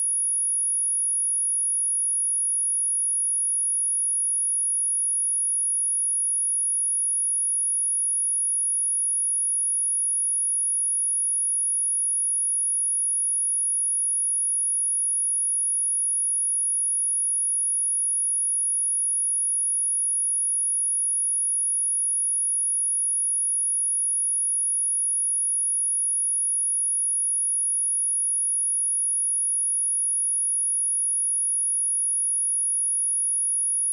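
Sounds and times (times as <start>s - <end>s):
high-pitched sine test tone: 33.6s - 33.9s.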